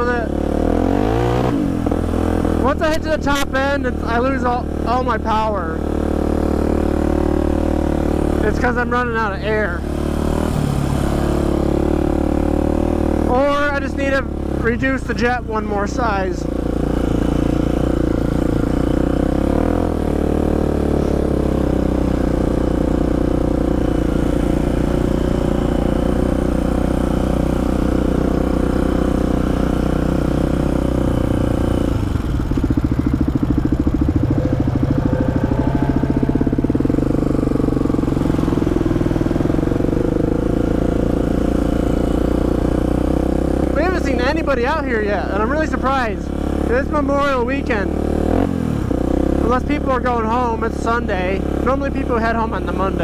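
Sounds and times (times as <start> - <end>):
quad bike engine running: 0.0 - 53.0.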